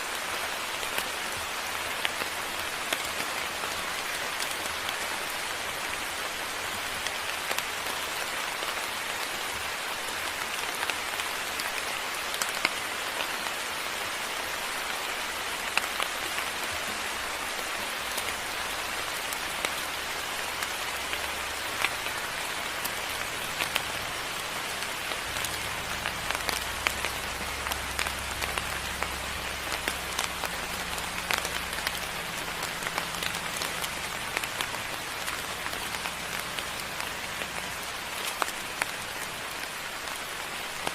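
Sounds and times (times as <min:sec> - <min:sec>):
steady rain: 0:00.0 - 0:40.9
low steady rumble: 0:23.0 - 0:37.2.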